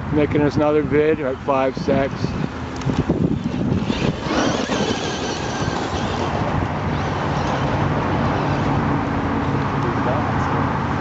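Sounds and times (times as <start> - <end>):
wheels rolling on pavement: 2.2 - 9.9
high motor whine: 2.4 - 9.7.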